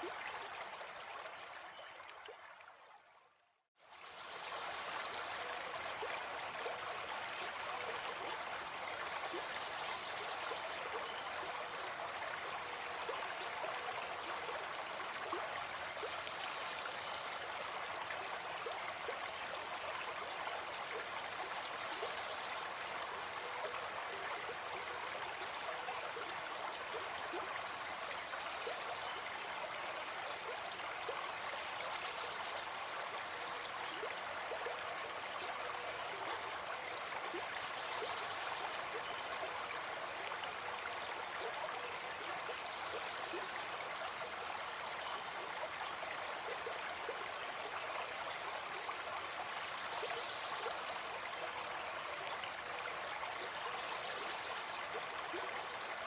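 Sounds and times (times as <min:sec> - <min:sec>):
stream flowing over stones: 0:00.0 - 0:02.8, 0:03.8 - 0:56.0.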